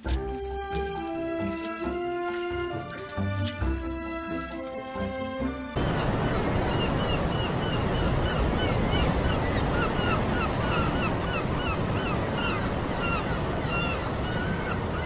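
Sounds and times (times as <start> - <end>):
flock of birds calling: 1.0 - 15.0.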